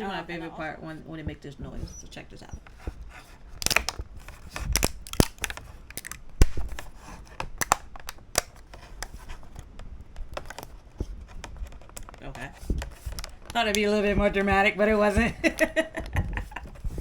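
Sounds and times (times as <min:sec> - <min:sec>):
plastic model cracking and popping: 0:03.5 - 0:16.9.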